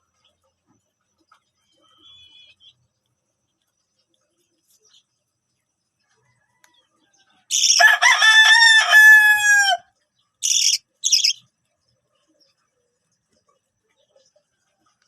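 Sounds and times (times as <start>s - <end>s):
rooster crowing: 7.4s - 9.9s
short raspy chirps: 10.4s - 11.4s.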